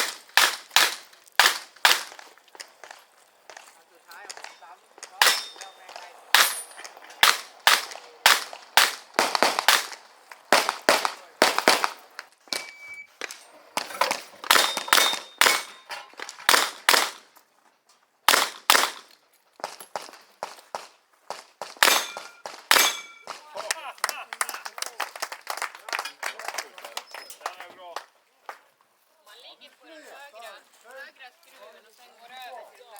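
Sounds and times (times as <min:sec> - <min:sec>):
metallic ring: 0:05.2 - 0:07.2, 0:12.5 - 0:13.6, 0:21.9 - 0:23.3.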